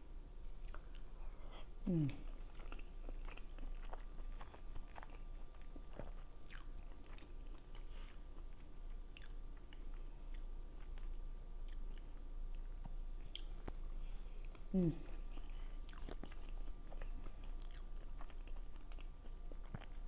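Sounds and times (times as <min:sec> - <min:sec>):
person chewing food: 0:00.6 - 0:20.0.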